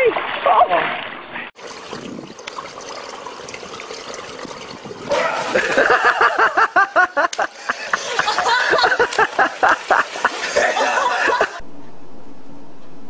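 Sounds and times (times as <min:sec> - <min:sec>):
water splashing and trickling: 0:00.0 - 0:11.6
person plunging into pool: 0:01.6 - 0:11.6
person laughing: 0:05.1 - 0:11.6.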